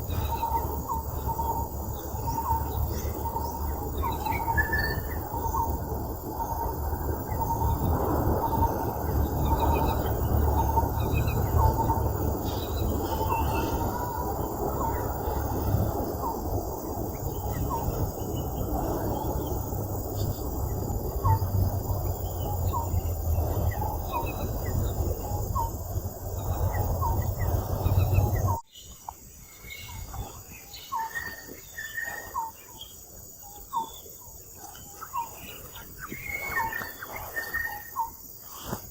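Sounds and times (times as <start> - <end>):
steady low noise: 0.0 - 28.6
birds chirping: 0.0 - 38.9.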